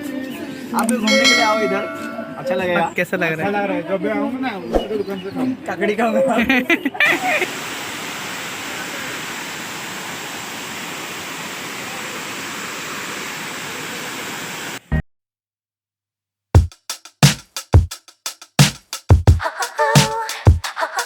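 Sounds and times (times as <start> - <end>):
waterfall rushing: 7.2 - 14.8
music with heavy punchy beat: 16.6 - 21.0.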